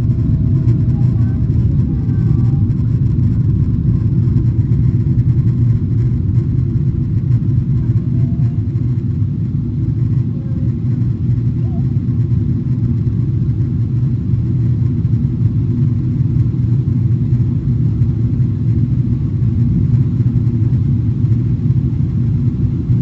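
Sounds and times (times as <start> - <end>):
airplane cabin rumble: 0.0 - 23.0.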